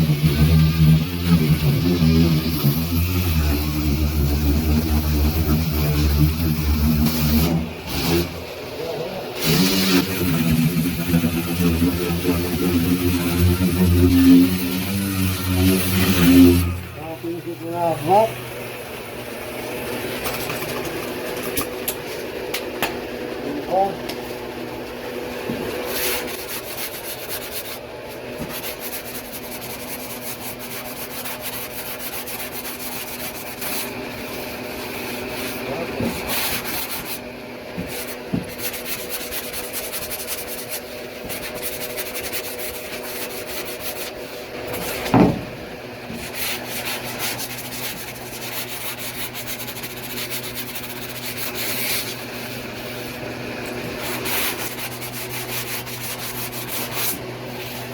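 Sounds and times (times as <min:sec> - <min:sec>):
power sander on metal: 0:00.0 - 0:08.6, 0:09.4 - 0:20.7, 0:37.8 - 0:57.9.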